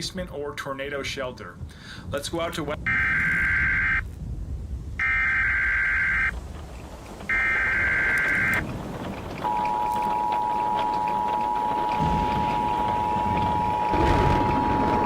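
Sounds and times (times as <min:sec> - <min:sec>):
screeching data bursts: 0:02.8 - 0:04.0, 0:05.0 - 0:06.4, 0:07.3 - 0:08.7, 0:09.4 - 0:15.0
two-tone attention signal: 0:09.4 - 0:15.0.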